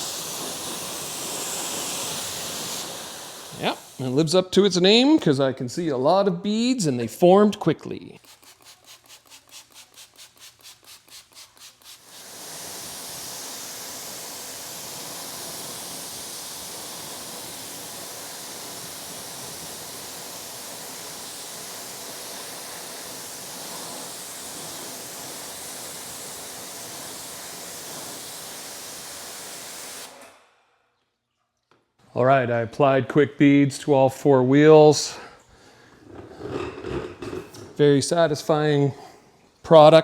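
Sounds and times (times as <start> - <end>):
pressure washer spraying: 0.0 - 4.3, 8.2 - 30.2
rapid short hissing pulses: 0.0 - 4.4.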